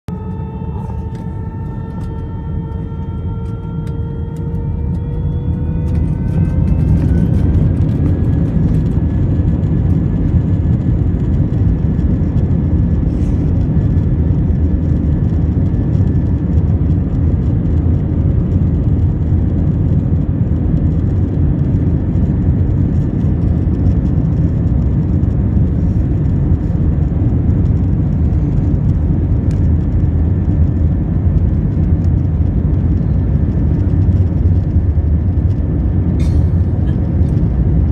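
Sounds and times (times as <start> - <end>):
jet engine rumble: 0.1 - 37.9
jet engines whining: 0.1 - 37.9.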